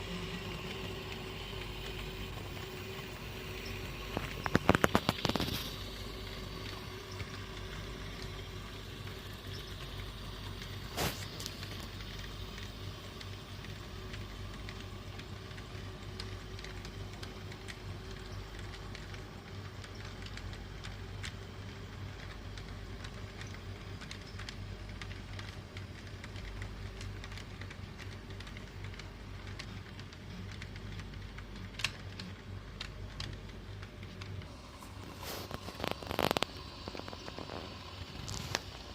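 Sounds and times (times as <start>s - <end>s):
model train motor hum: 0.0s - 19.2s.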